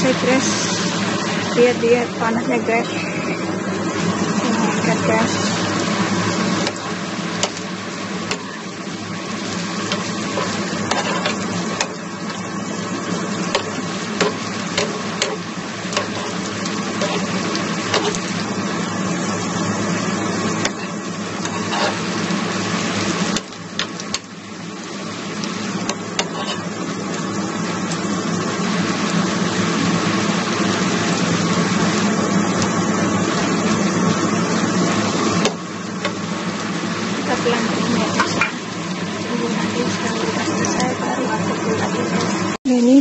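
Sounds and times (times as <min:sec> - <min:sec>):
food sizzling in a pan: 0:00.0 - 0:43.0
steady low hum: 0:00.0 - 0:43.0
metal spoon scraping a pan: 0:09.9 - 0:12.0, 0:13.5 - 0:18.3, 0:20.6 - 0:22.1, 0:25.9 - 0:26.8.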